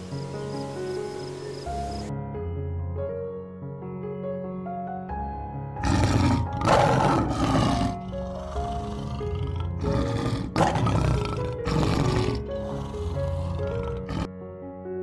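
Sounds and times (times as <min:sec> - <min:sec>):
soft background music: 0:00.0 - 0:15.0
tiger growling and roaring: 0:05.8 - 0:14.3.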